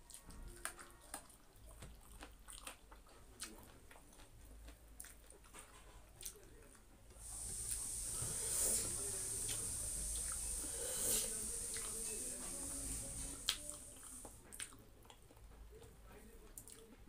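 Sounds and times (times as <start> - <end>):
chewing with wet mouth clicks: 0.1 - 7.8, 13.4 - 17.0
steady high hiss: 7.2 - 14.4.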